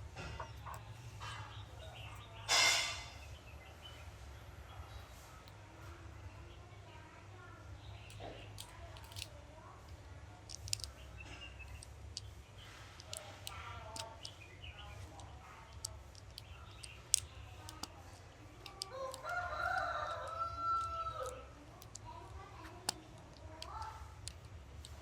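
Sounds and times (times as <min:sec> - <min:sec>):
light clicks and taps: 0:08.0 - 0:25.0
rooster crowing: 0:19.0 - 0:21.3.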